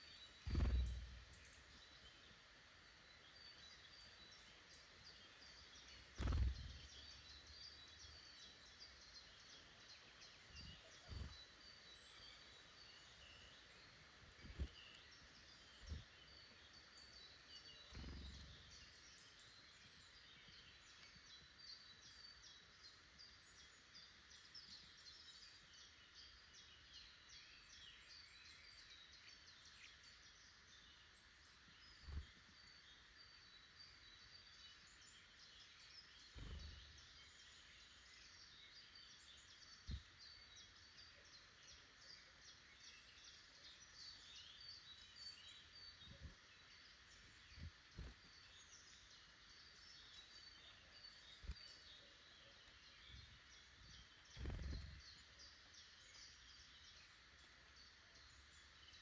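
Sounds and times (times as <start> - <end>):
small birds chirping: 0.0 - 59.0
dull low thumps: 0.5 - 1.3.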